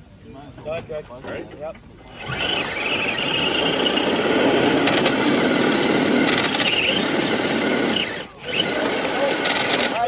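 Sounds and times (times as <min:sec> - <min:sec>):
toy truck motor whining: 0:02.0 - 0:10.0.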